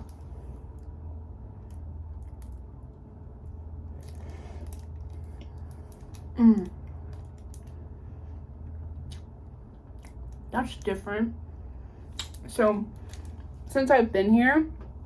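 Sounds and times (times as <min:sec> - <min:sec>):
low room hum: 0:00.0 - 0:15.0
woman humming mm: 0:06.4 - 0:06.8.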